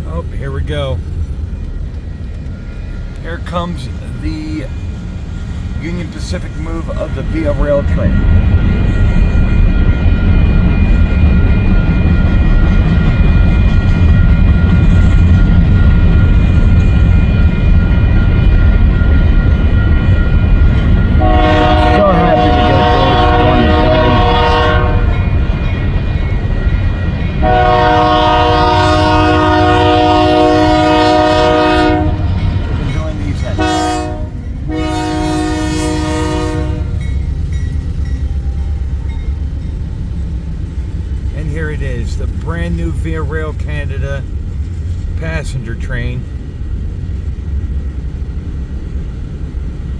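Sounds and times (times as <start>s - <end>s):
diesel locomotive rumbling past: 0.0s - 49.9s
train horn blasts: 20.2s - 25.4s, 27.4s - 37.2s.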